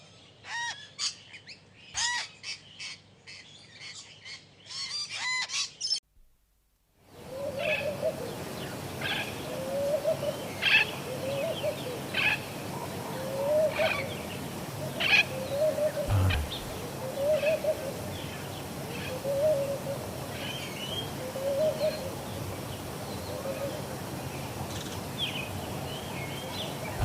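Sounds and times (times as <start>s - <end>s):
low hooting bird call: 15.5s - 17.8s
low thump: 16.1s - 16.8s.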